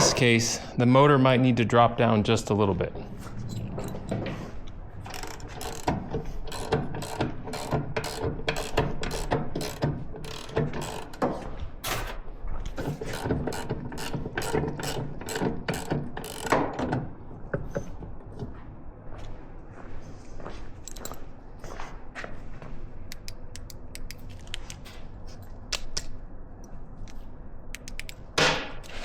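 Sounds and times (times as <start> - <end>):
ratchet wrench clicking: 5.1 - 11.2, 13.0 - 16.6, 27.8 - 28.2.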